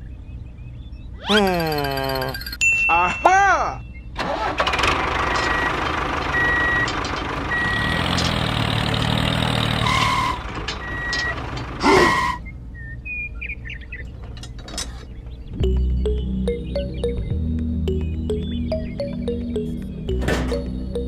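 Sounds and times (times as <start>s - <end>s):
chirps: 0.0s - 2.6s, 3.7s - 4.2s, 6.3s - 21.0s
vehicle engine running: 4.2s - 12.7s, 13.4s - 21.0s
reversing alarm beeps: 5.3s - 8.0s, 9.8s - 12.4s.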